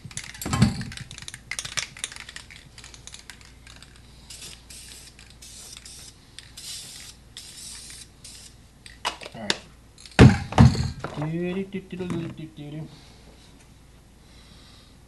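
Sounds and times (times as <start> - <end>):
spray paint can hissing: 1.0 - 8.6.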